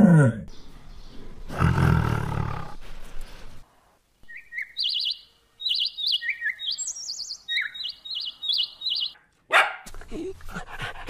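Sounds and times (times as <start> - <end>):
tiger roaring: 0.0 - 0.5, 1.5 - 2.8
songbird trilling: 4.2 - 9.2.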